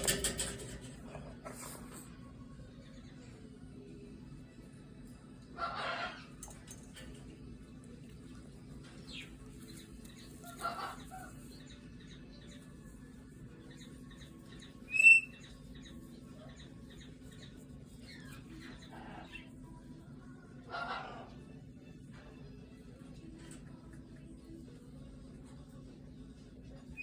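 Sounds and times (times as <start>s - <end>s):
soft bird vocal sound: 0.0s - 27.0s
cockatoo chirp: 14.8s - 17.1s.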